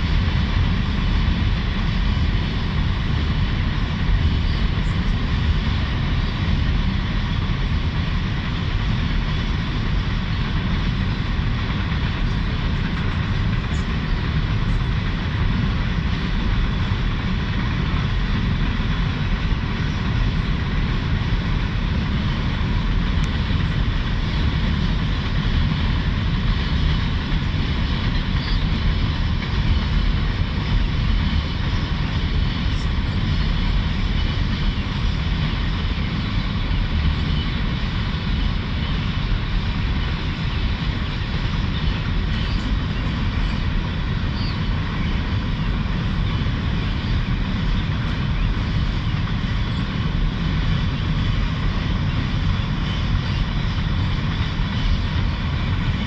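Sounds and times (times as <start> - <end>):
freight train cars rolling on rails: 0.0 - 56.0.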